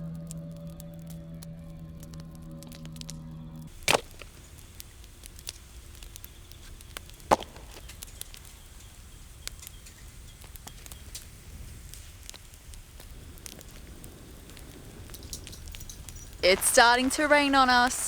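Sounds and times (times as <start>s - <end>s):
campfire crackling: 1.9s - 18.0s
loud sharp knocks: 7.3s - 7.8s.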